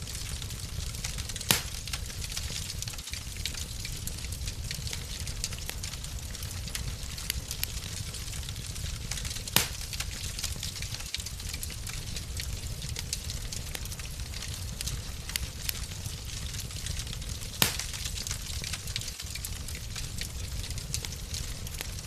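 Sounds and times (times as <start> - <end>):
fire pop: 0.0 - 5.6, 6.4 - 21.8
fire crackling: 0.0 - 22.0.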